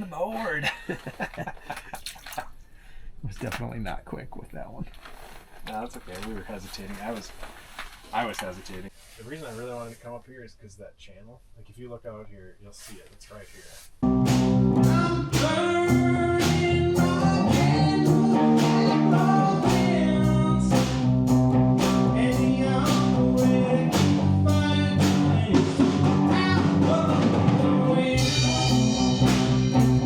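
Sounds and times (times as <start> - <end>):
guitar: 14.0 - 30.0
steady drum beat: 14.0 - 30.0
person singing: 14.7 - 29.4.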